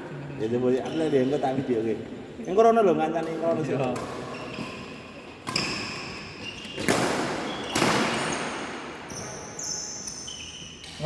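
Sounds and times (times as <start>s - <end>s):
shoes squeaking on court floor: 0.6s - 1.8s, 3.2s - 11.0s
racket hitting shuttlecock: 5.4s - 9.1s.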